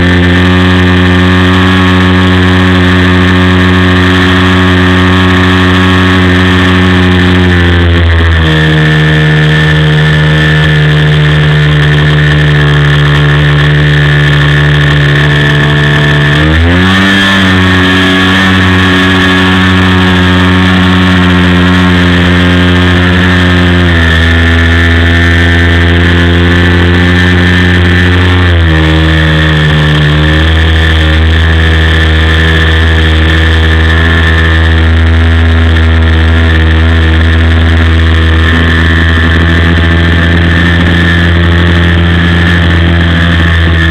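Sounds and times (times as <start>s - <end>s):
model plane engine running: 0.0s - 43.9s.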